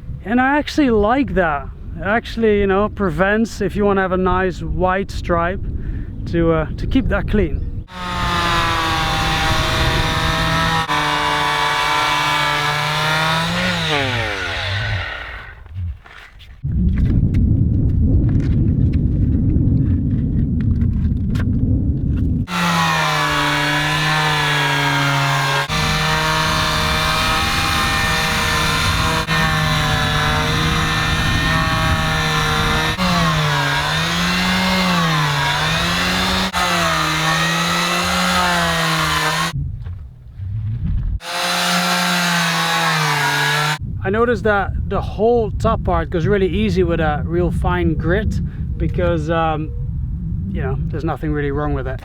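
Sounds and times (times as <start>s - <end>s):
electric sander whining: 7.9s - 15.6s, 22.5s - 39.6s, 41.2s - 43.8s.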